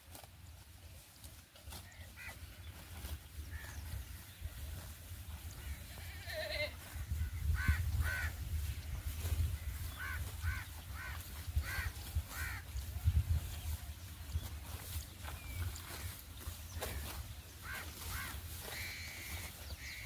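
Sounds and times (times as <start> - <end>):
wind on microphone: 5.6 - 16.1
bird cawing: 9.8 - 12.6, 16.9 - 20.0.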